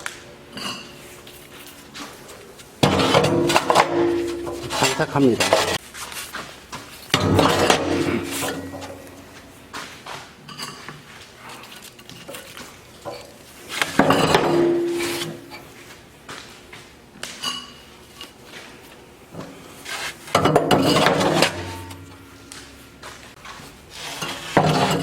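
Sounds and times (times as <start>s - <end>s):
brick knocking and scraping on metal: 2.8s - 5.8s, 7.1s - 9.4s, 13.8s - 15.6s, 20.3s - 22.3s, 24.0s - 25.0s
loud metal clang: 2.8s - 5.8s, 7.1s - 9.5s, 14.0s - 15.6s, 20.4s - 22.8s.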